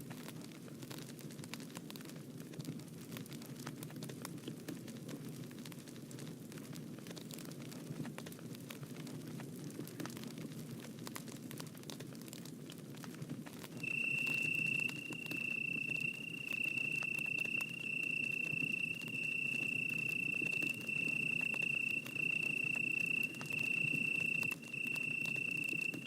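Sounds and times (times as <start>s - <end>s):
bonfire rushing and crackling: 0.0s - 26.0s
insect trilling: 13.8s - 26.0s.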